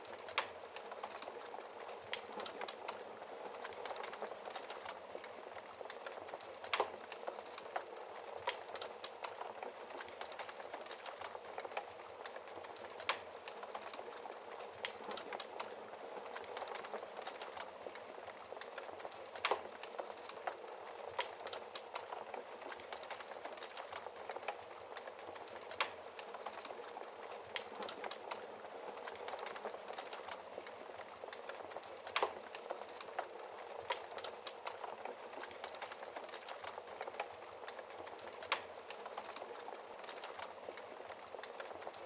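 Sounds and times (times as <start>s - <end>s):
wood fire crackling and popping: 0.0s - 42.0s.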